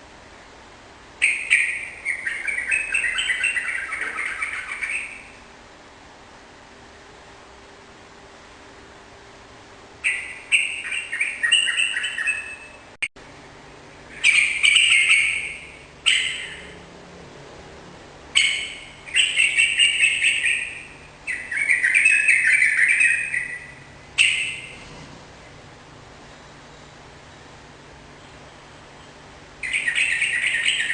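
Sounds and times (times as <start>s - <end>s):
bulbul singing: 1.2s - 5.5s, 10.0s - 13.0s, 13.9s - 16.8s, 18.3s - 24.8s, 28.2s - 30.9s.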